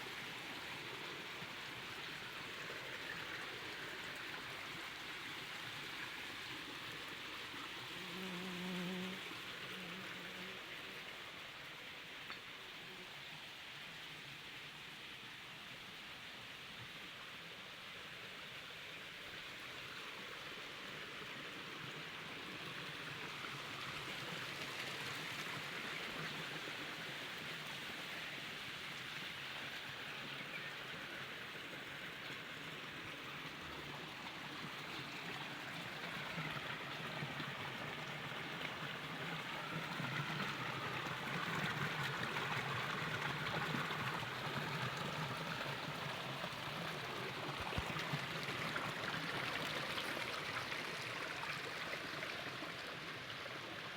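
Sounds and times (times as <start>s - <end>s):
stream water rushing: 19.7s - 53.9s.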